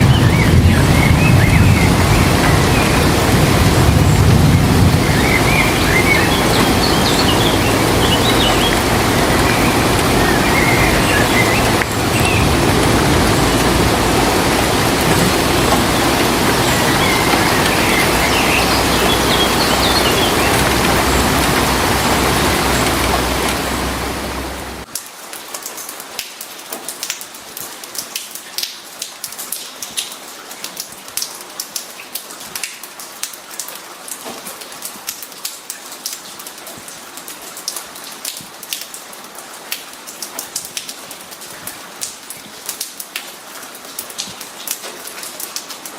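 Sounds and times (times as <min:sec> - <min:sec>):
heavy rain pouring: 0:00.0 - 0:45.9
raindrops tapping on hard surface: 0:05.0 - 0:23.6.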